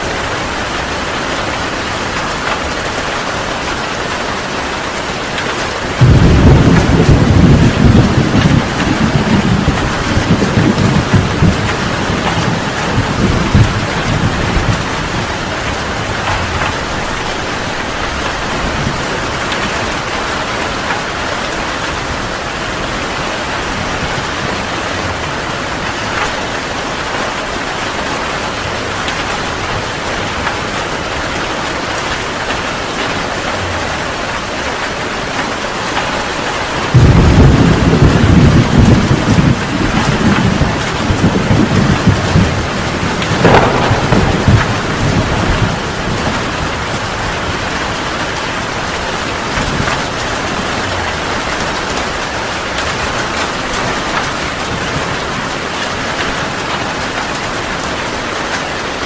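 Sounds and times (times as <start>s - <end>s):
heavy rain falling: 0.0s - 59.0s
thunder rumbling: 4.6s - 34.6s, 36.0s - 55.6s.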